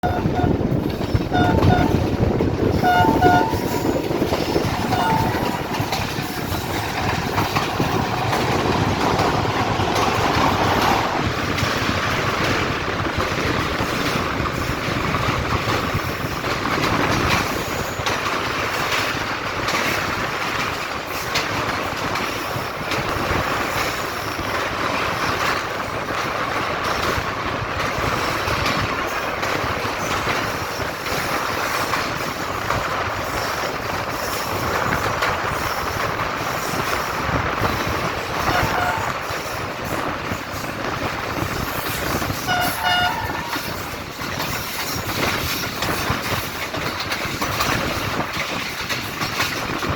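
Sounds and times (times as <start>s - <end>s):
train wheels on rails: 0.0s - 49.9s
high steady tone: 1.2s - 2.1s, 2.8s - 4.0s, 4.6s - 6.3s.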